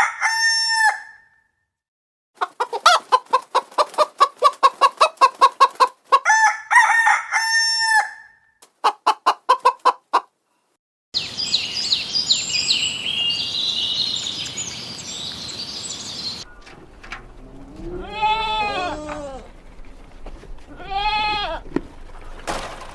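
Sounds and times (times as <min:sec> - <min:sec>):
rooster crowing: 0:00.0 - 0:01.3, 0:06.2 - 0:08.4, 0:17.2 - 0:19.5
chickens clucking: 0:02.4 - 0:06.5, 0:08.6 - 0:10.3, 0:16.4 - 0:22.9.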